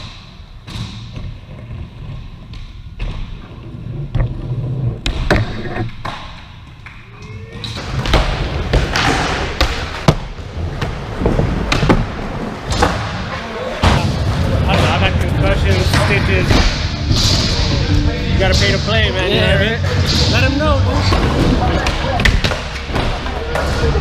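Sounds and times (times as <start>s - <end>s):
skateboards rolling on ramps: 7.7s - 18.8s
skateboard slaps and thuds: 7.8s - 13.2s.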